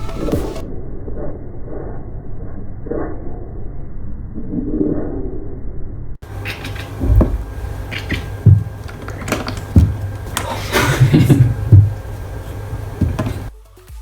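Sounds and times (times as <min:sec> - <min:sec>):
knocks and deep thumps: 0:06.2 - 0:13.5.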